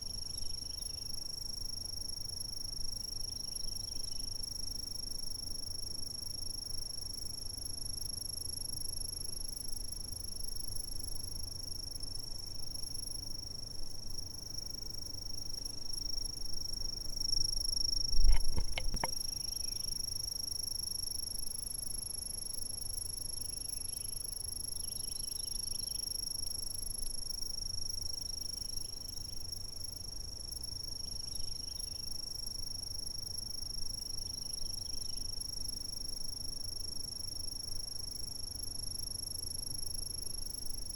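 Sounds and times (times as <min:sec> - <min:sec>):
insects chirping: 0:00.0 - 0:04.6, 0:14.2 - 0:37.7
low thump with clicks: 0:18.1 - 0:19.2.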